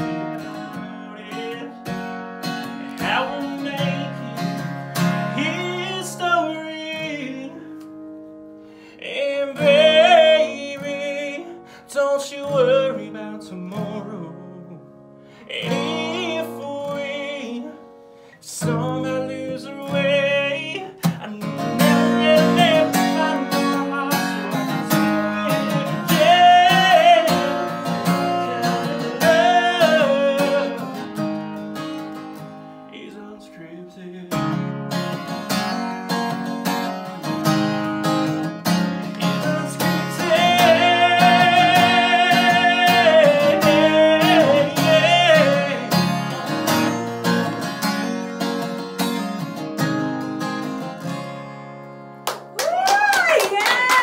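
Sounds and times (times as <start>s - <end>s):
person singing: 0.0s - 7.8s, 8.9s - 17.8s, 18.4s - 31.2s, 32.9s - 34.8s, 38.2s - 47.6s, 52.6s - 54.0s
strummed acoustic guitar: 0.0s - 52.6s.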